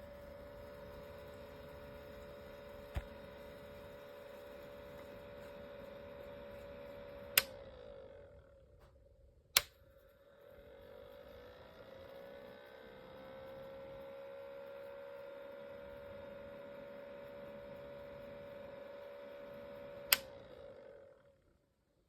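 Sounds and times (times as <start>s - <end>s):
humidifier humming: 0.0s - 9.8s
sharp click: 9.6s - 9.8s, 20.1s - 20.3s.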